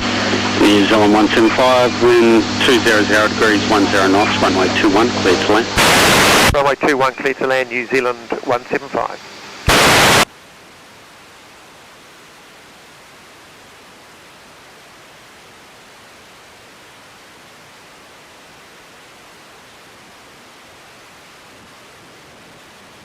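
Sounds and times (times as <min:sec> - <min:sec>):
radio static hiss: 0:00.0 - 0:10.3.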